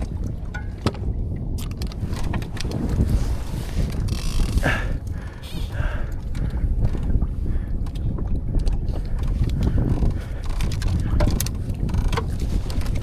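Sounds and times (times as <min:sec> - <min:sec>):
handling clicks and knocks: 0:00.0 - 0:03.2, 0:08.6 - 0:13.0
wind buffeting microphone: 0:00.0 - 0:13.0.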